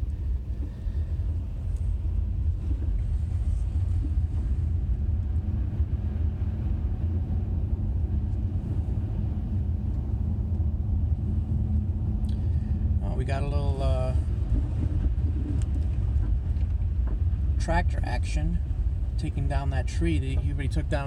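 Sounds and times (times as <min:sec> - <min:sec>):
engine and road rumble: 0:00.0 - 0:21.0.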